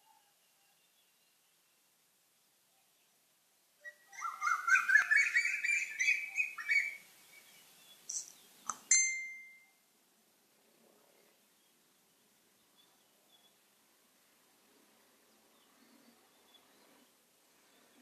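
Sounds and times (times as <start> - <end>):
songbird chirping: 0.0 - 9.9, 11.1 - 18.0
sharp click: 8.1 - 8.9
ringing tone: 8.9 - 9.8.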